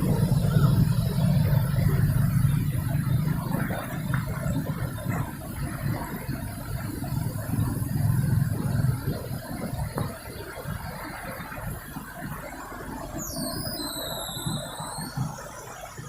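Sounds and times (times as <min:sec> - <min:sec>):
street noise: 0:00.0 - 0:16.0
vehicle engine passing: 0:00.0 - 0:16.0
high-pitched squeal: 0:12.6 - 0:16.0.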